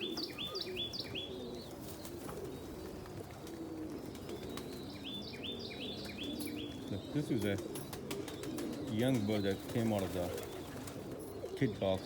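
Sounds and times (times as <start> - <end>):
songbird chirping: 0.0 - 3.0, 4.0 - 12.0
pigeons cooing: 0.0 - 12.0.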